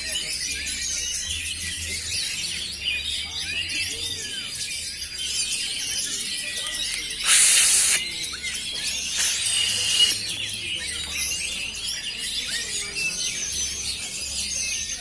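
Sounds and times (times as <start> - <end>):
birds singing in a dense chorus: 0.0 - 15.0
loud hissing burst: 7.2 - 8.1, 9.0 - 10.2.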